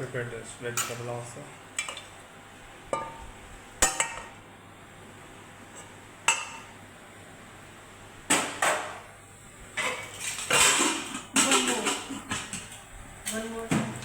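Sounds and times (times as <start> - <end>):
utensils knocking on cookware: 2.9 - 4.4, 9.8 - 12.7.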